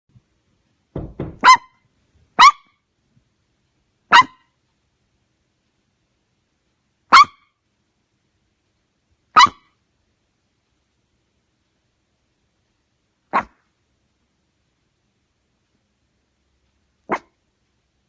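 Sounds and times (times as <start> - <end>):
soft knocks: 0.9 - 1.6
dog barking: 1.3 - 1.8, 2.4 - 2.8, 4.1 - 4.5, 7.1 - 7.5, 9.3 - 9.7, 13.3 - 13.6, 17.0 - 17.4.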